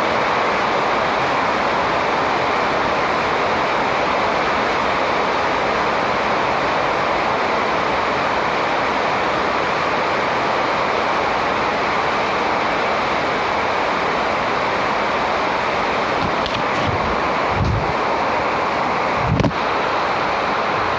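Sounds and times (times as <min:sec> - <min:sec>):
loud rushing noise: 0:15.4 - 0:20.9.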